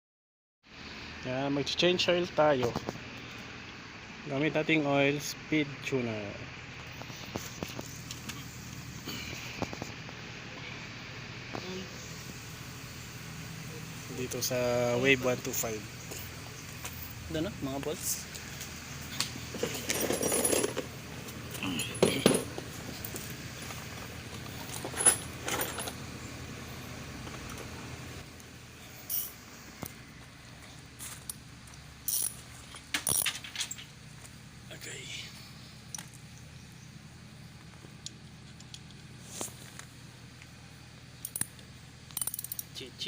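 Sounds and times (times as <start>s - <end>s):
metal hand tools clinking: 32.1s - 33.9s, 42.2s - 42.8s.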